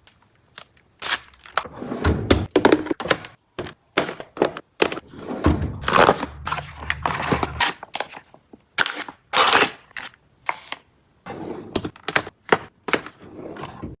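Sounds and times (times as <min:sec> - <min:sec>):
low hum: 0:05.1 - 0:07.6.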